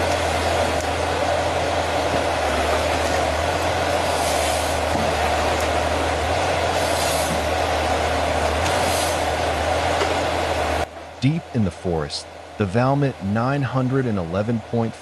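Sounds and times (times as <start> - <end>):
harvester diesel engine and hydraulics: 0.0 - 15.0
brief hissing: 6.8 - 7.4, 8.8 - 9.2.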